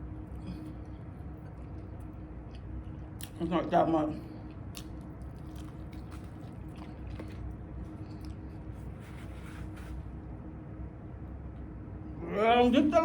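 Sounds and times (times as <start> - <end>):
close-up chewing: 4.4 - 9.0.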